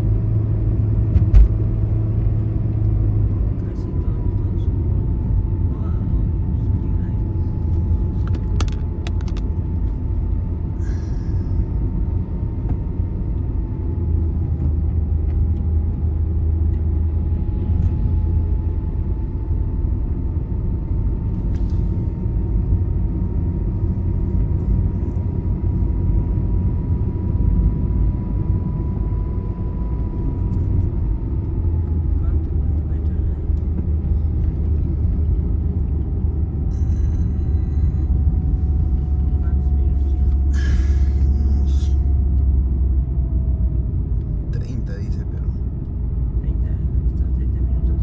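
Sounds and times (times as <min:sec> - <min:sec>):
road and engine rumble: 0:00.0 - 0:48.0
faint steady whine: 0:15.6 - 0:48.0.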